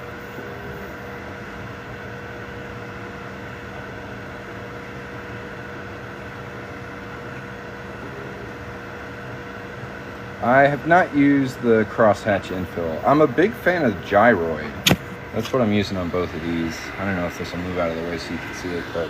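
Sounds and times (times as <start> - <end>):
cooling fans whirring: 0.0 - 19.0
three d printers humming: 0.0 - 19.0.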